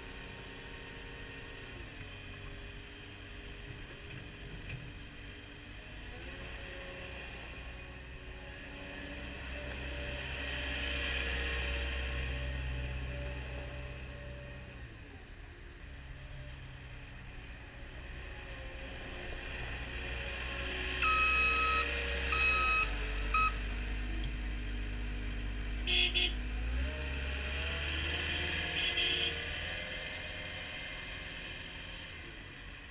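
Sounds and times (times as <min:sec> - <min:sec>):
diesel engine under load: 0:00.0 - 0:32.9
backup alarm beeping: 0:21.0 - 0:23.6.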